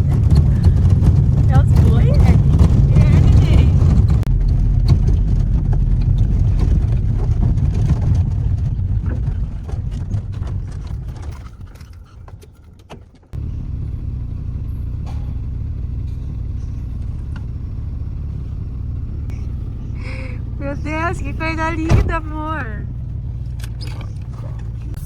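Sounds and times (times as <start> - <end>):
car engine and tyres rumbling: 0.0 - 25.0.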